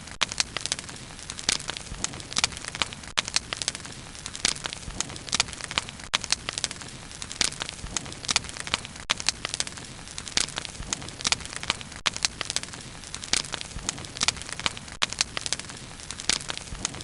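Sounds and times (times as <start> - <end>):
bonfire crackling and popping: 0.0 - 17.0
soft hiss of fire: 0.0 - 17.0.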